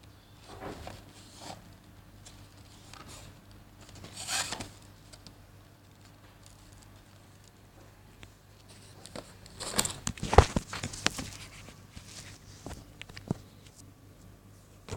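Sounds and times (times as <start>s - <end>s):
packaging rustling: 9.6s - 13.4s.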